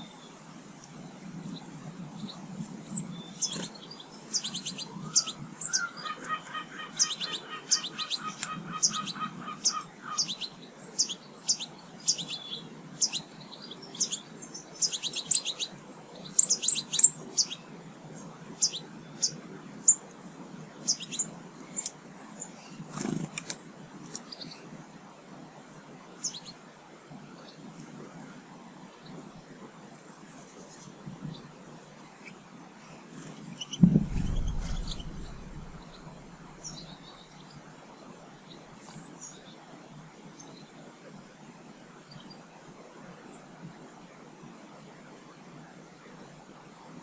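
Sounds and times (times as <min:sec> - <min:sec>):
small birds high chirps: 0:01.5 - 0:20.0
bird rapid chattering call: 0:33.7 - 0:37.0.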